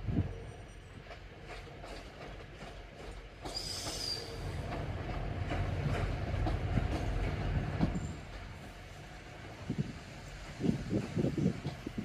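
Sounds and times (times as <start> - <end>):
train rumble: 0.0 - 12.0
wheels clicking over rail joints: 1.0 - 8.4.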